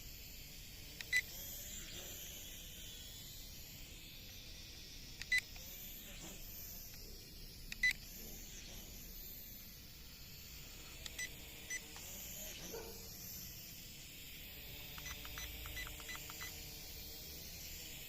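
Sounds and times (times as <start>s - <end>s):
small drone motors whining: 0.0s - 18.0s
remote controller beeps: 15.0s - 16.6s.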